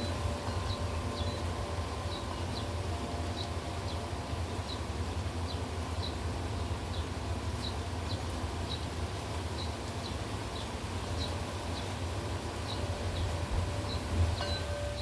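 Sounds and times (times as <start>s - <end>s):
heavy rain hiss: 0.0s - 15.0s.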